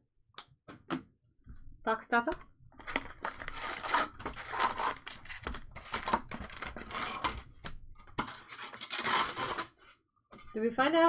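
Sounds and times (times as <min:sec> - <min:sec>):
foil and cardboard crinkling and ripping: 0:02.8 - 0:07.6.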